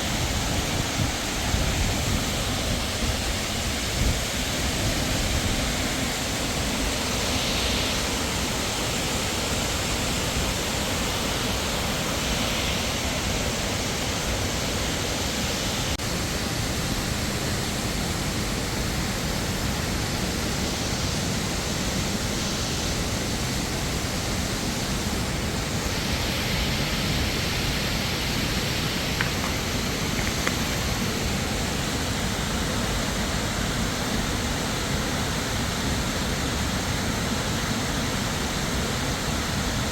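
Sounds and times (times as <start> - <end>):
falling water rushing: 0.0 - 39.9.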